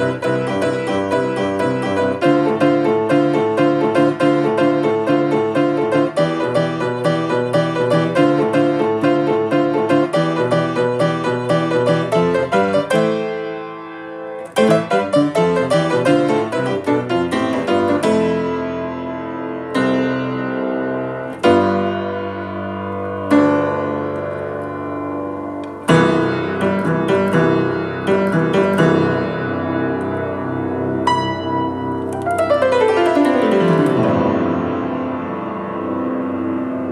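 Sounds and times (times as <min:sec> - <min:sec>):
piano playing: 0:00.0 - 0:36.9.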